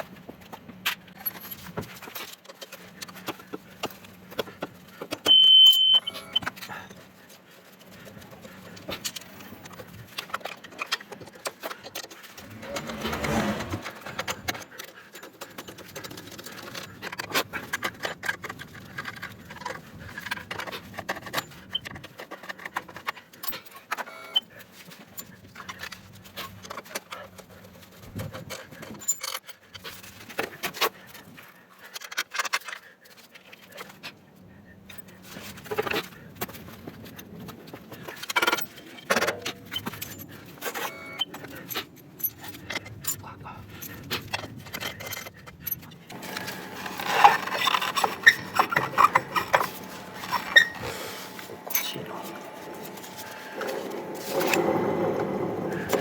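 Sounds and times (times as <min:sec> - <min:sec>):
short high beep: 0:05.3 - 0:06.4
metallic clinks of tools: 0:51.6 - 0:53.0.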